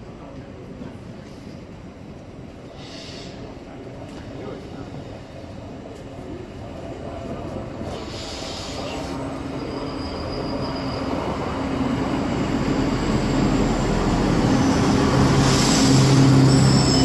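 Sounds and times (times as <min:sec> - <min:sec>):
train rumbling: 0:00.0 - 0:17.0
faint wheel squeals: 0:08.0 - 0:11.4.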